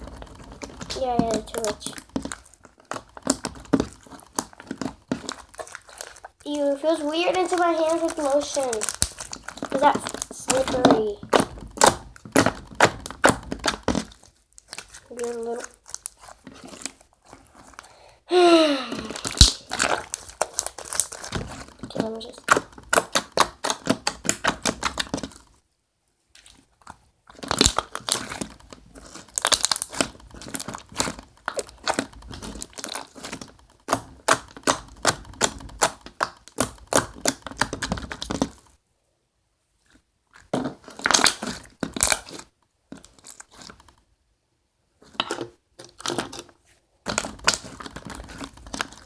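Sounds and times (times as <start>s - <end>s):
slime squeezed sticky clicks and pops: 19.2s - 21.2s.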